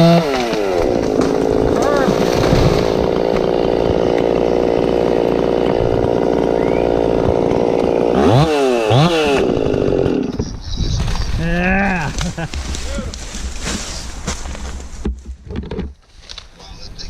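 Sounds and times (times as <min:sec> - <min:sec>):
chainsaw cutting wood: 0:00.0 - 0:10.4.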